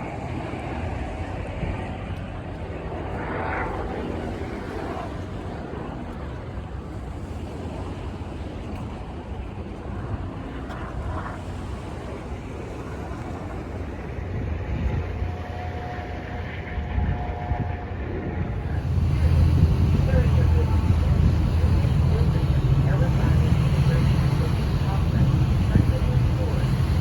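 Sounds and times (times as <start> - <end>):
wind noise on microphone: 0.0 - 27.0
vehicle rumble: 14.1 - 27.0.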